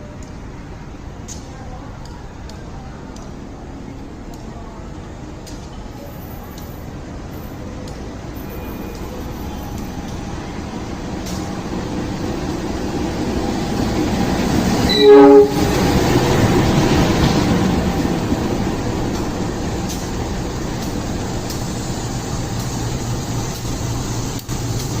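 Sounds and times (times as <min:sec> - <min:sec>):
locomotive engine running: 0:07.6 - 0:25.0
train horn blast: 0:14.8 - 0:16.0.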